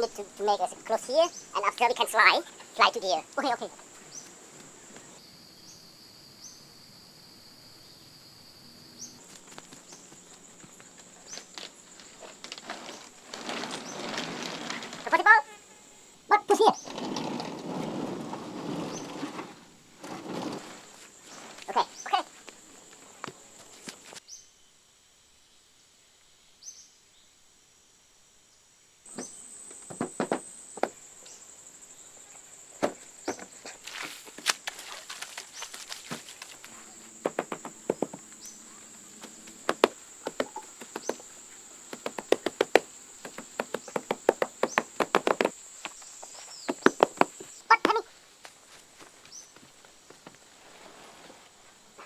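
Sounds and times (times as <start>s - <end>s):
hand tool chopping wood: 37.2s - 38.2s, 39.5s - 41.2s, 41.9s - 45.6s, 46.7s - 48.0s.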